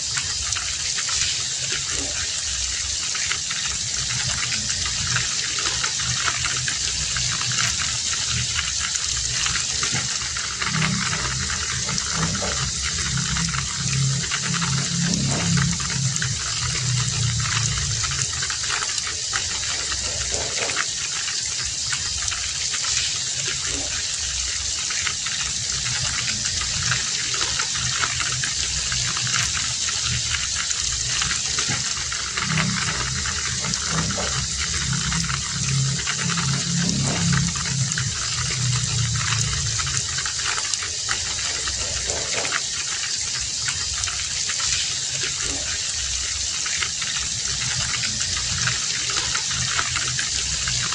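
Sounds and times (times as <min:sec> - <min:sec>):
heavy rain falling: 0:00.0 - 0:50.9
low rumble: 0:03.8 - 0:20.8, 0:25.6 - 0:42.6.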